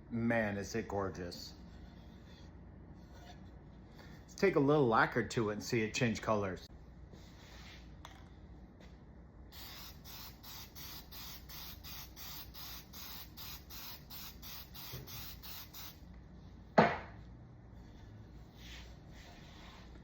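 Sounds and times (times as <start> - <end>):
brush strokes rubbing wood: 17.9 - 20.0.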